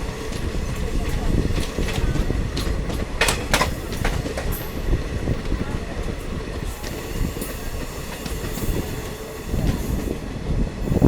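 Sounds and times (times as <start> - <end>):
diesel train rumbling on track: 0.0 - 11.0
sharp clicks from train wheels: 0.0 - 11.0.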